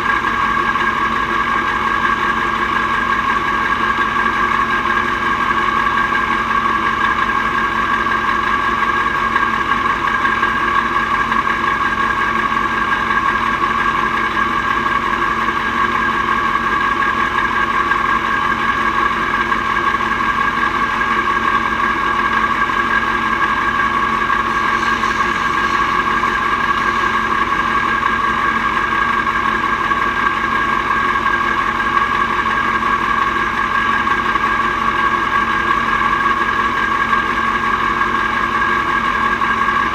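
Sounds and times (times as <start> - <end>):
truck engine running steadily: 0.0 - 39.9
high whine: 21.0 - 39.9.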